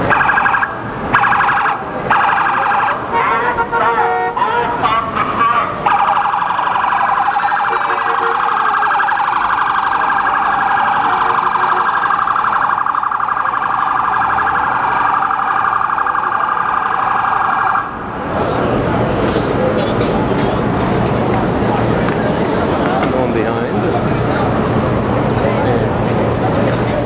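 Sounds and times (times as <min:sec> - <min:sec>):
warbling siren: 0:00.0 - 0:18.5.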